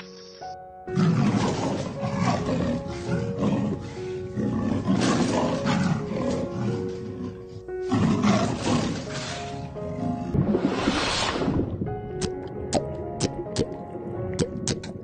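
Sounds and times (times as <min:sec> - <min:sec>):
background music of held notes: 0:00.0 - 0:15.0
big cat roaring: 0:01.0 - 0:10.4.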